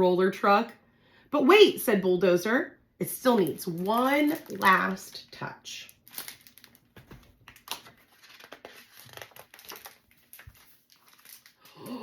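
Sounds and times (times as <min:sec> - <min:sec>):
paper pages rustling: 0:03.4 - 0:05.0, 0:05.9 - 0:11.7.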